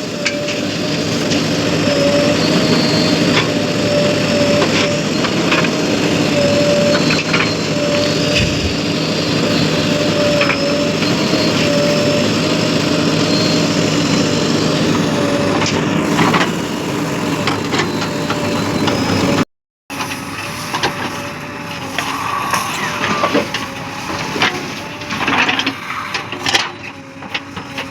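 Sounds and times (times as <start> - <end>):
heavy diesel engine running: 0.0 - 27.9.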